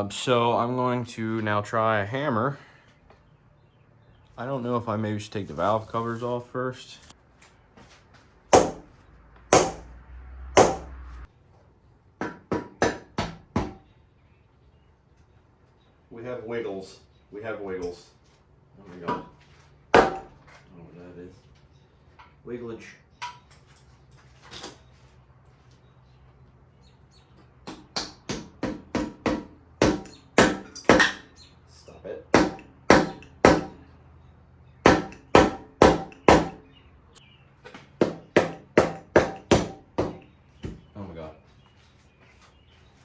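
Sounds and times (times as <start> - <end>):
hammer striking metal: 8.5 - 8.9, 9.5 - 10.0, 10.6 - 11.3, 12.2 - 13.8, 20.0 - 20.4, 27.7 - 31.3, 32.4 - 33.8, 34.8 - 36.6, 38.0 - 40.2.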